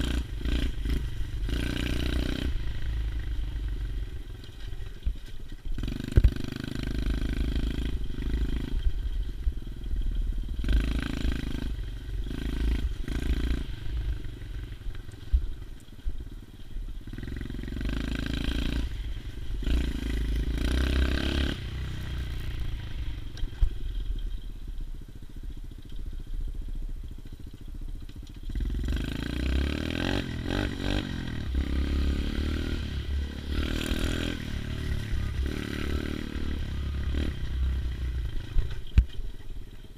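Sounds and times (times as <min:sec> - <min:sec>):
motorbike engine revving: 0:00.0 - 0:04.0, 0:05.7 - 0:15.4, 0:17.0 - 0:24.4, 0:28.4 - 0:39.0.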